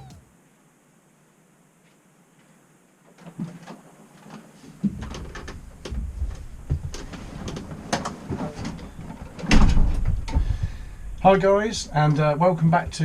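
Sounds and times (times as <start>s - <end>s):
irregular knocks and clicks: 4.8s - 10.9s
heavy thump: 9.5s - 11.6s.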